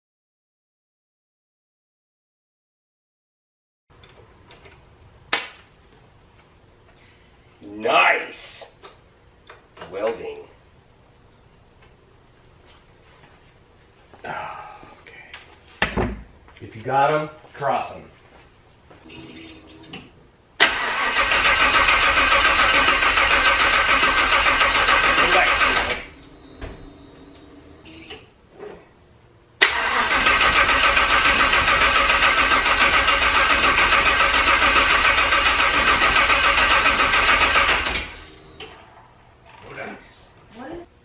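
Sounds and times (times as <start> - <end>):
starter motor cranking engine: 20.6 - 26.3, 29.6 - 38.4.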